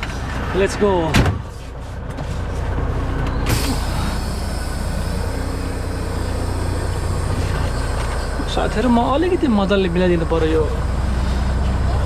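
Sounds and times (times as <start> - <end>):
diesel truck engine running: 0.0 - 12.0
air brake hiss: 3.5 - 6.7.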